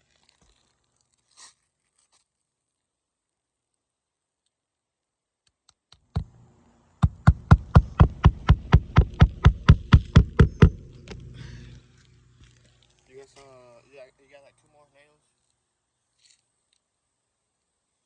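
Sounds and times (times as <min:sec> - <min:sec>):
hammer striking roofing nail: 0:07.0 - 0:11.3.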